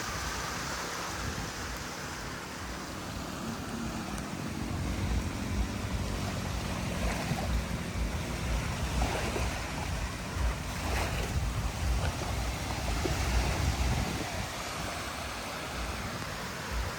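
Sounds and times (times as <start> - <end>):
surf washing onto beach: 0.0 - 16.9
wind on microphone: 0.0 - 16.9.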